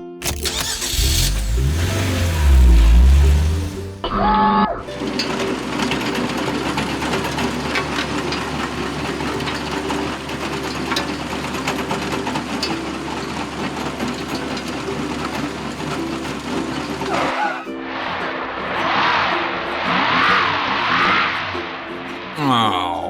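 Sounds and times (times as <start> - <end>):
fast mechanical rattle: 0.0 - 4.1, 4.8 - 17.6
vehicle engine running: 0.0 - 17.6.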